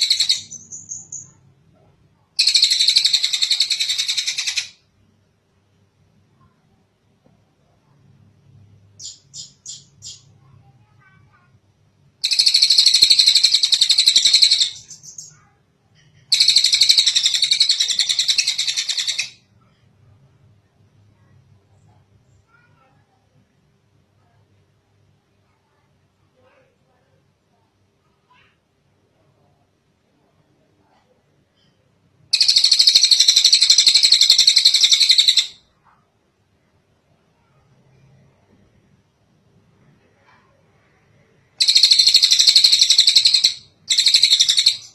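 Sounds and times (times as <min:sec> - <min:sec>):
bird calling with trills: 0:00.0 - 0:01.4, 0:09.0 - 0:10.3, 0:12.2 - 0:15.4, 0:32.4 - 0:35.6, 0:41.6 - 0:44.9
songbird high-pitched trill: 0:09.0 - 0:10.3, 0:41.6 - 0:44.9.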